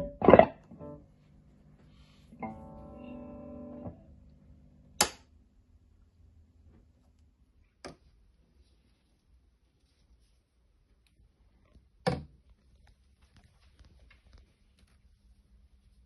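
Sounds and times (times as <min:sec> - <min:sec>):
guitar chord ringing: 0:00.0 - 0:01.1, 0:02.3 - 0:04.5.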